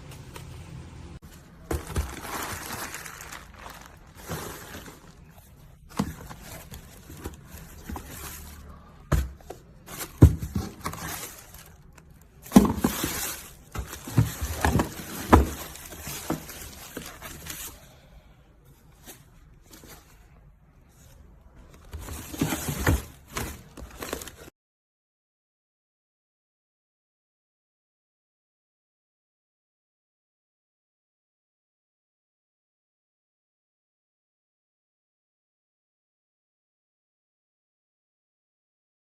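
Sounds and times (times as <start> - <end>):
rustling of plastic packaging: 1.3 - 18.0, 20.9 - 24.5.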